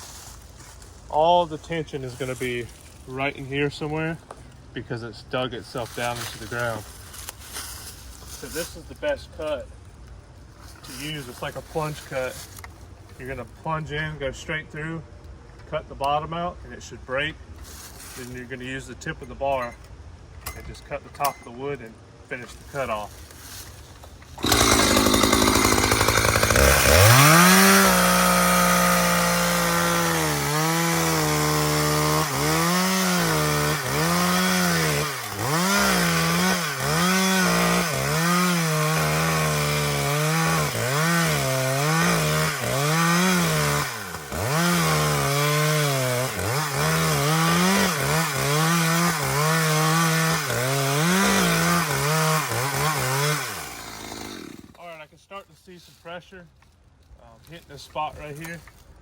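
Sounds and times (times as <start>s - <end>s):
chainsaw cutting log: 24.4s - 54.8s.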